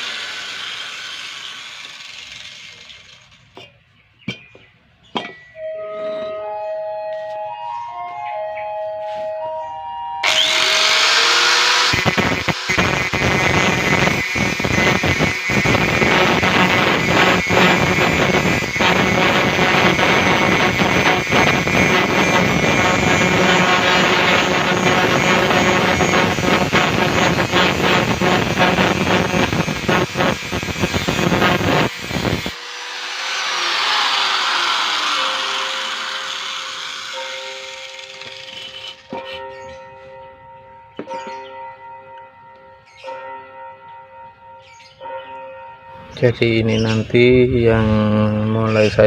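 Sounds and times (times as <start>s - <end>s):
angle grinder grinding metal: 0.0s - 3.7s, 10.2s - 39.7s.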